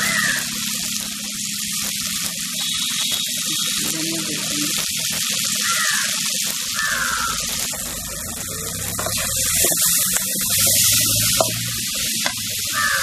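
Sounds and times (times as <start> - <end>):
masala sizzling in a pan: 0.0 - 13.0
spoon scraping and tapping pan: 9.0 - 12.5.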